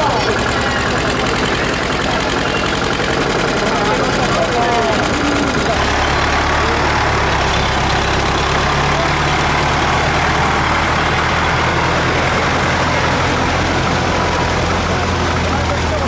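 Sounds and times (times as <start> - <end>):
tractor engine droning: 0.0 - 16.0.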